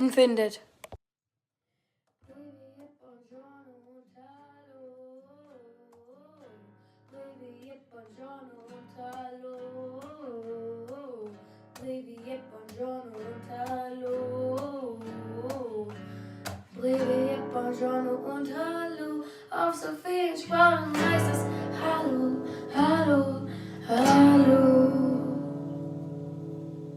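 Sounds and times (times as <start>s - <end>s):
strummed acoustic guitar: 6.2s - 19.1s, 20.1s - 26.9s
person singing: 16.8s - 25.8s.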